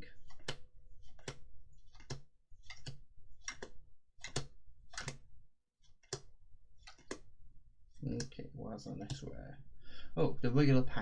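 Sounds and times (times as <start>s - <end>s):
trading cards clicking: 0.2s - 7.3s, 9.0s - 9.3s.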